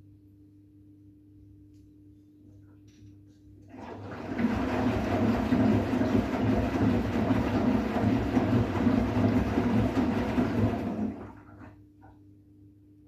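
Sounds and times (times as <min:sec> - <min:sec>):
washing machine churning: 0:03.7 - 0:12.1.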